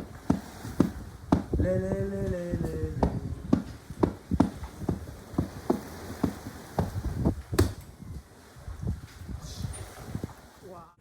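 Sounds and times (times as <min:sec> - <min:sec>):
short dull knocks: 0:00.0 - 0:01.6, 0:02.6 - 0:07.8.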